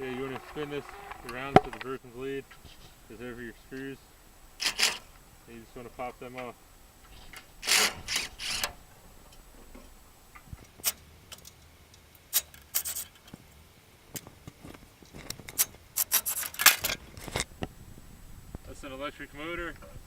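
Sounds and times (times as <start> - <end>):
metal clicks and scrapes of hand tools: 0.0 - 11.7, 12.3 - 13.4, 15.1 - 17.5.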